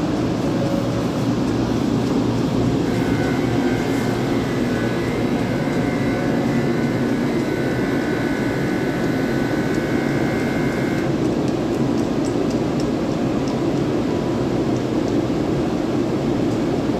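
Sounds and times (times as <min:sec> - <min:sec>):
train motors humming: 0:00.0 - 0:11.5
faint high whine: 0:02.7 - 0:11.2.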